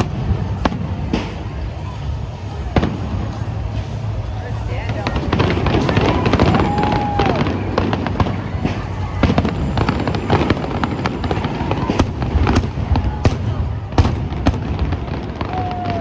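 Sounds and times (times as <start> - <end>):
fireworks crackling and banging: 0.0 - 16.0
low rumble: 0.0 - 16.0
firework whistle: 5.1 - 16.0.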